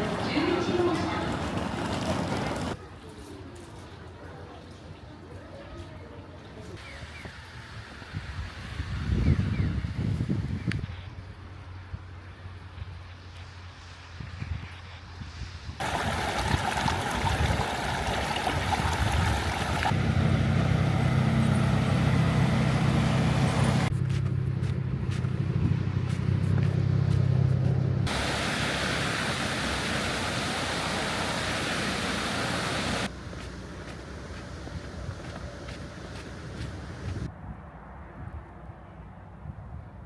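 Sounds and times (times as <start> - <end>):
train low steady hum: 0.0 - 2.8, 19.9 - 38.0
train rushing hiss: 28.1 - 33.1.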